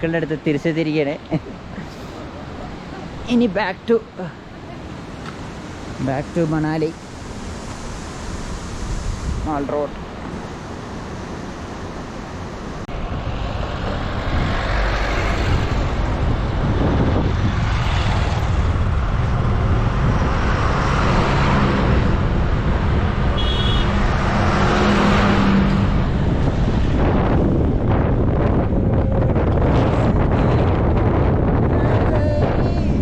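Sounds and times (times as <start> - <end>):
road noise: 0.0 - 33.0
wind rushing over microphone: 4.8 - 33.0.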